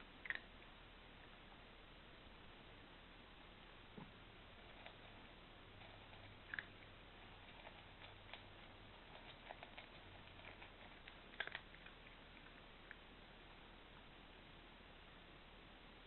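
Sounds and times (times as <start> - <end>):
cat crunching dry food: 0.2 - 0.5, 4.4 - 13.0.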